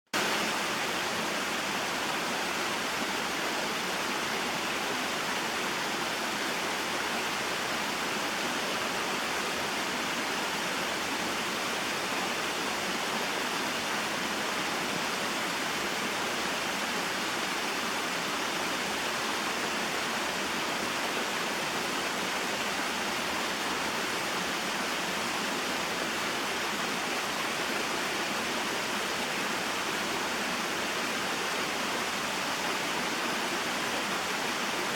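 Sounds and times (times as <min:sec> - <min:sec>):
water falling and flowing: 0:00.2 - 0:34.9.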